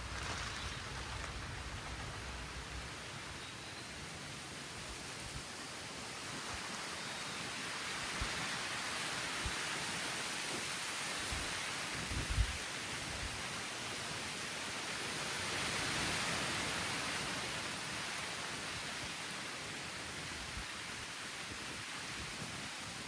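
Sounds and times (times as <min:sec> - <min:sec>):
dull low thumps: 0:00.0 - 0:03.4
light rain falling: 0:00.0 - 0:23.0.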